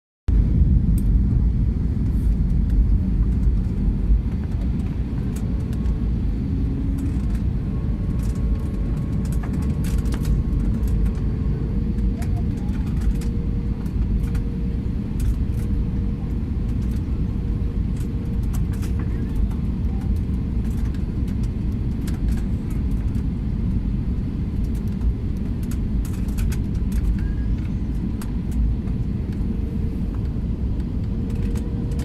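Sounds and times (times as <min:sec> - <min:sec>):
airliner cabin rumble: 0:00.3 - 0:32.0
light clicks and rattles: 0:08.1 - 0:14.4, 0:16.7 - 0:17.1, 0:18.0 - 0:23.3, 0:24.6 - 0:29.4, 0:31.0 - 0:32.0.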